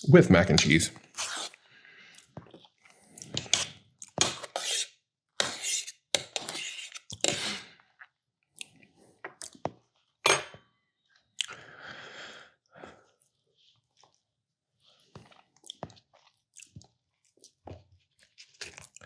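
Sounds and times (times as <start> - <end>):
close chewing mouth noises: 15.0 - 19.0.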